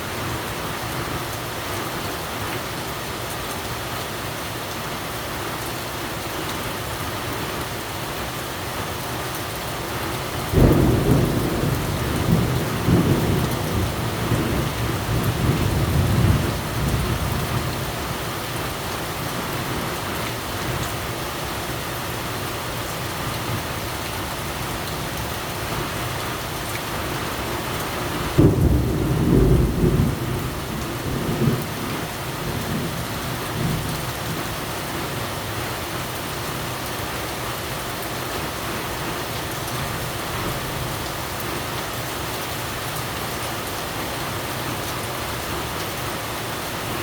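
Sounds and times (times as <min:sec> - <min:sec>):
heavy rain falling: 0:00.0 - 0:47.0.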